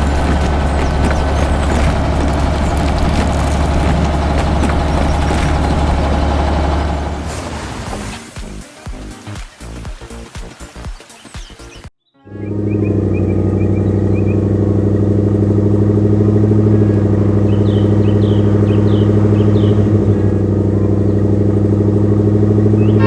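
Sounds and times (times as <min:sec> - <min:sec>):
heavy vehicle engine running: 0:00.0 - 0:07.3
bird chirps: 0:17.4 - 0:20.0.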